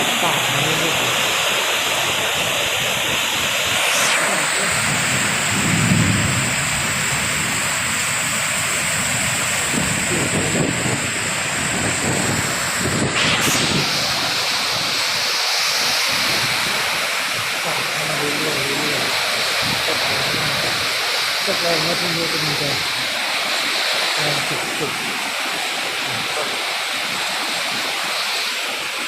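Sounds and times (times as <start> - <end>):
heavy rain pouring: 0.0 - 29.0
low rumble: 3.7 - 8.2.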